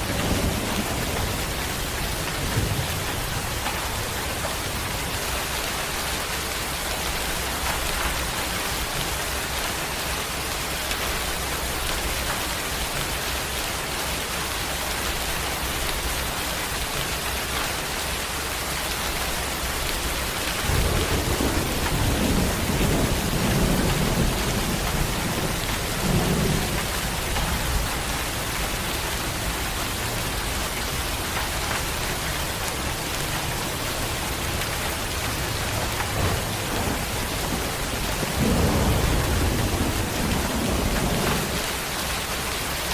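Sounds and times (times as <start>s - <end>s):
thunder rumbling: 0.0s - 9.3s, 19.4s - 42.4s
steady rain falling: 0.0s - 42.9s.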